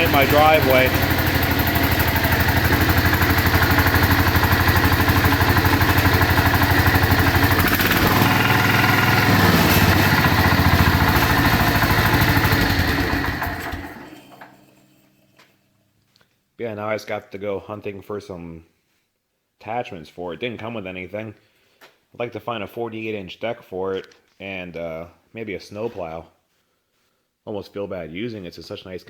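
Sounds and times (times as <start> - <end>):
garden tractor engine running: 0.0 - 14.6.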